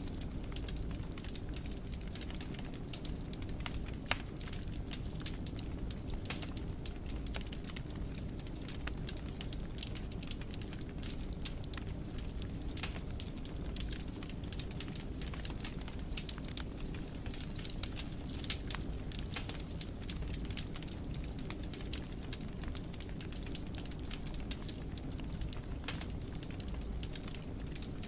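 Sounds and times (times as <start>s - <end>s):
wood fire crackling and popping: 0.0s - 28.0s.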